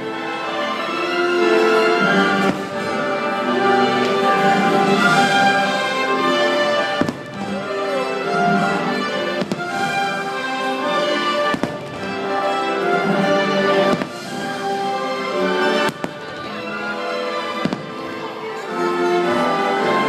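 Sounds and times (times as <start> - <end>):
orchestral music playing loudly: 0.0 - 20.0
firework bursts cracking: 2.2 - 3.1, 6.6 - 16.8, 17.6 - 18.2.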